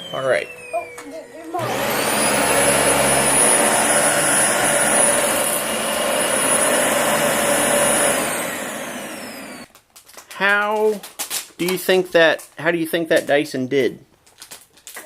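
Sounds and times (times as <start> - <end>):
vacuum cleaner whining: 0.0 - 9.7.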